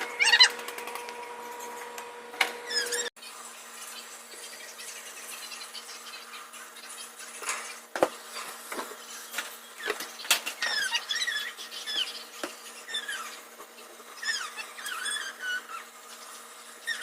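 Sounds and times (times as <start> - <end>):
short high sliding squeaks: 2.7 - 3.1, 14.2 - 15.9.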